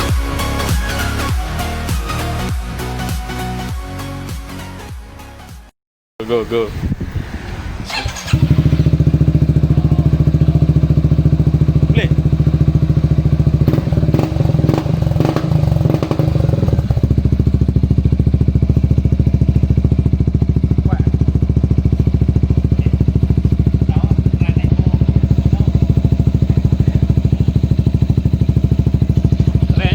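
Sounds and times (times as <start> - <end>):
motorcycle engine idling: 7.9 - 29.9.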